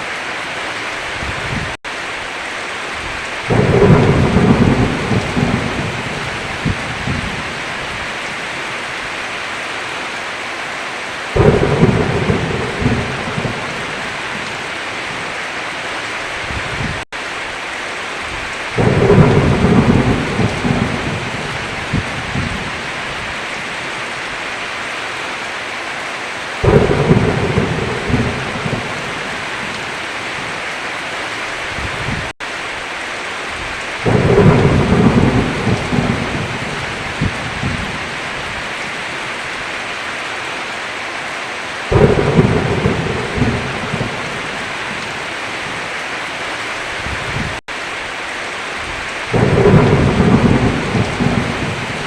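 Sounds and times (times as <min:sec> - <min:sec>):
heavy rain on a roof: 0:00.0 - 0:52.0
thunder rolling: 0:03.5 - 0:08.0, 0:11.4 - 0:14.7, 0:18.7 - 0:23.3, 0:26.6 - 0:29.9, 0:34.0 - 0:38.6, 0:41.9 - 0:45.8, 0:49.3 - 0:52.0.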